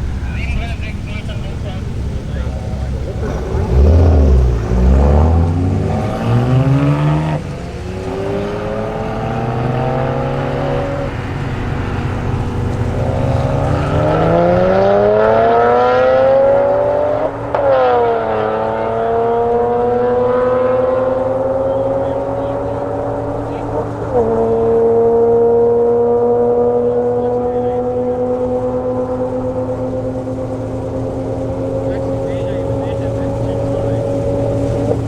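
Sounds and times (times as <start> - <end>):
car engine accelerating hard: 0.0 - 35.0.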